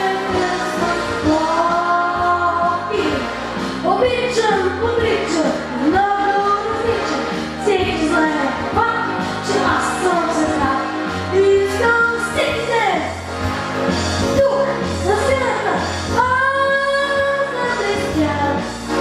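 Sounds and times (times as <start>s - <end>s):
backing track with steady beat: 0.0s - 19.0s
person singing pop song: 0.0s - 19.0s.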